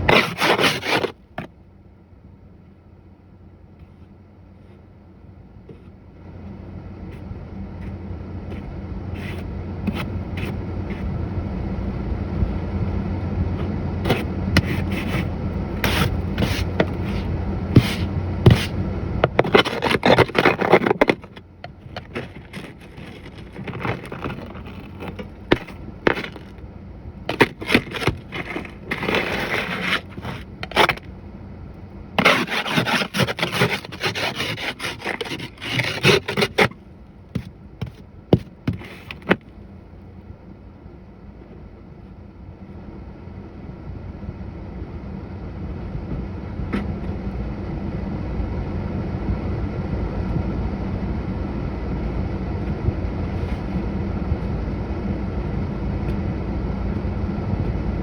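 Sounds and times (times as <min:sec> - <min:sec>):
snow scraped off truck: 0:00.0 - 0:01.4, 0:07.1 - 0:11.3, 0:13.6 - 0:31.2, 0:32.2 - 0:39.4
steady low rumble: 0:01.2 - 0:58.0.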